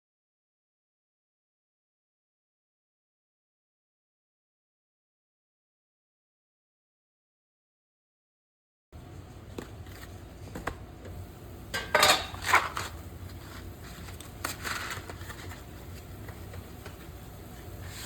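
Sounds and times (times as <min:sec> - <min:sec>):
steady low hum: 0:09.0 - 0:18.0
utensils and cookware clattering: 0:11.7 - 0:15.7.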